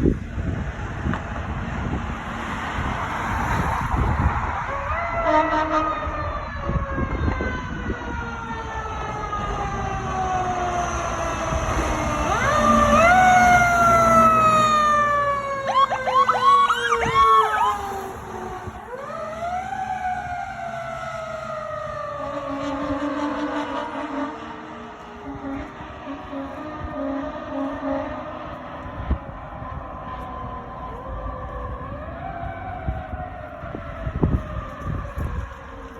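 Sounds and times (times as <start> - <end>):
fire engine siren wailing: 0.0 - 35.9
truck engine rumbling: 0.0 - 35.9.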